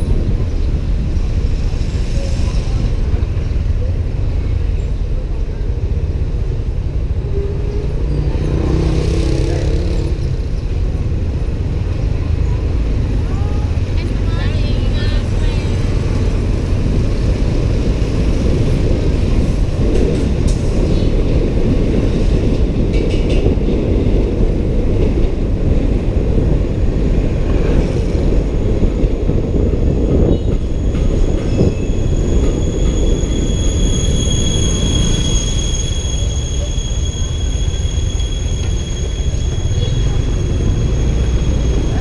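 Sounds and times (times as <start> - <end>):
motorbike engine and road noise: 3.1 - 22.3
wind buffeting microphone: 12.9 - 33.9.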